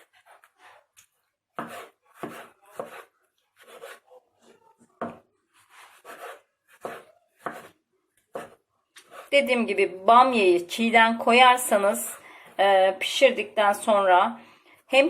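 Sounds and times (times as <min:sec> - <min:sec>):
knife chopping on cutting board: 0:01.6 - 0:04.0, 0:05.0 - 0:05.2, 0:05.8 - 0:09.3.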